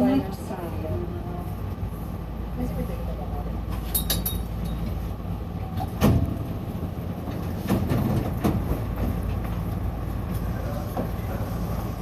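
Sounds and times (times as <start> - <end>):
train arriving humming: 0.0 - 12.0.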